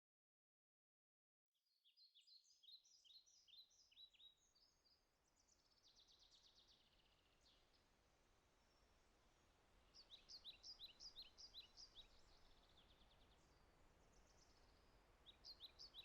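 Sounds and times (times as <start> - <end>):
high songbird chirps: 1.9 - 7.8, 9.9 - 16.0
faint steady hiss: 4.4 - 16.0.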